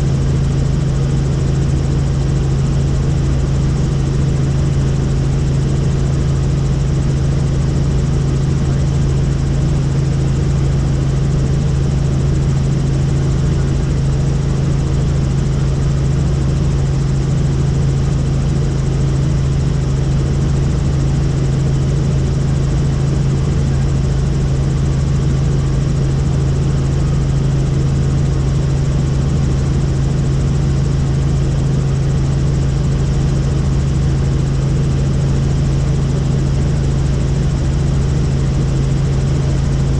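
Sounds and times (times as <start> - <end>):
helicopter drone: 0.0 - 39.9.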